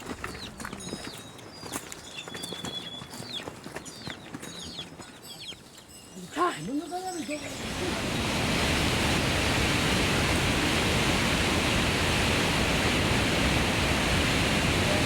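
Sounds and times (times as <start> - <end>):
loud rushing water: 7.4 - 15.0.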